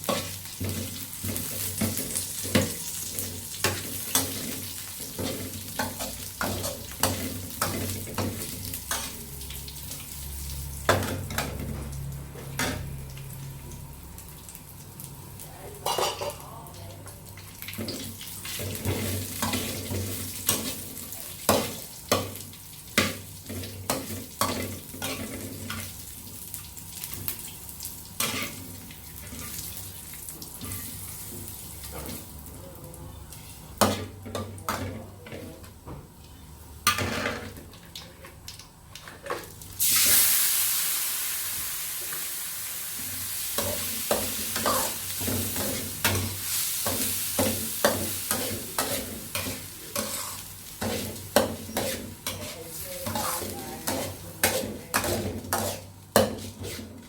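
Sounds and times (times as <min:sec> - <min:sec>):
loud sizzle: 0:00.0 - 0:33.8, 0:38.5 - 0:56.8
food frying in a pan: 0:00.0 - 0:35.5, 0:36.5 - 0:57.0.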